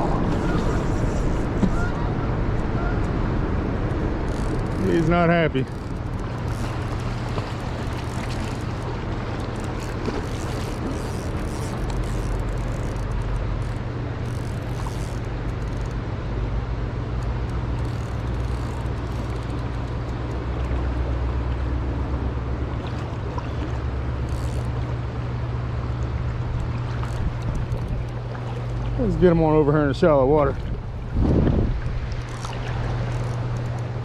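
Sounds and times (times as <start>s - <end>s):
low rumble: 0.0s - 9.7s
river current rushing: 0.0s - 16.0s.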